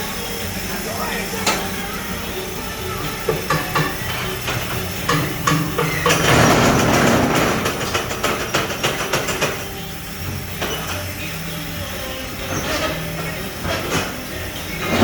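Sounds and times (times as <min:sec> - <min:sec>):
machine motor hum: 0:00.0 - 0:15.0
rapid metal clanks and knocks: 0:01.3 - 0:15.0
loud rushing noise: 0:06.0 - 0:09.7.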